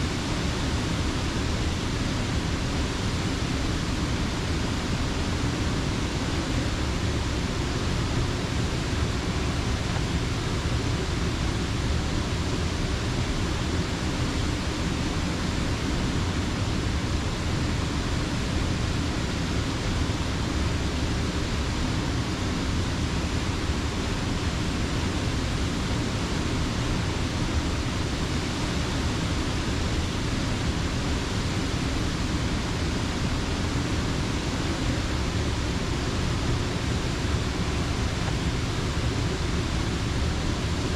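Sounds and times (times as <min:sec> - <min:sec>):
water rushing over a dam: 0:00.0 - 0:40.9.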